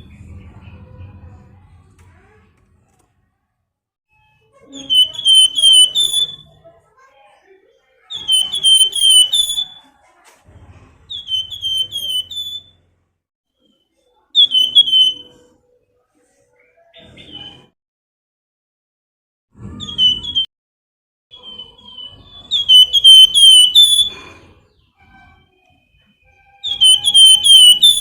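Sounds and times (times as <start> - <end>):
songbird whistled phrases: 4.7 - 6.6, 8.1 - 9.8, 11.1 - 12.7, 14.4 - 15.4, 21.3 - 24.3, 26.6 - 28.0.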